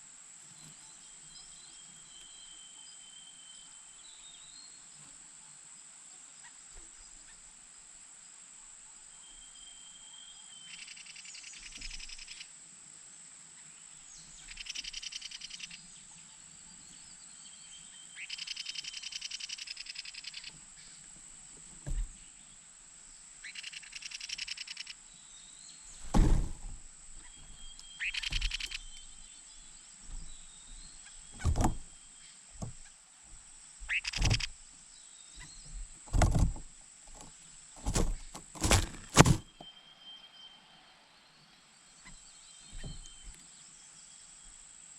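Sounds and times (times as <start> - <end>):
loud thuds: 26.0 - 27.6, 28.2 - 29.0, 30.1 - 32.0, 32.6 - 32.9, 33.9 - 34.5, 35.7 - 39.6.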